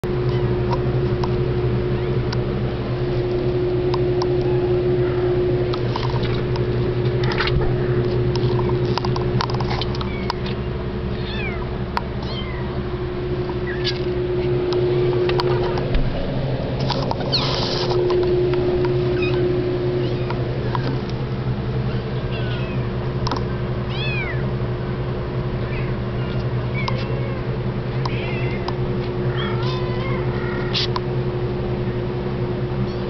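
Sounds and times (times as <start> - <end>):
steady low hum: 0.0 - 33.0
kittens mewing: 4.1 - 5.6, 9.8 - 12.8, 13.4 - 15.8, 17.2 - 20.8, 21.9 - 23.0, 23.9 - 24.5, 25.6 - 31.0.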